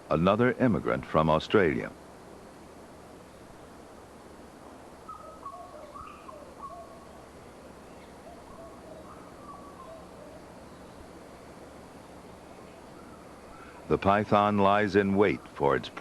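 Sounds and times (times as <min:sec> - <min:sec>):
outdoor ambience hiss: 0:00.0 - 0:16.0
bird whistled notes: 0:05.1 - 0:07.0.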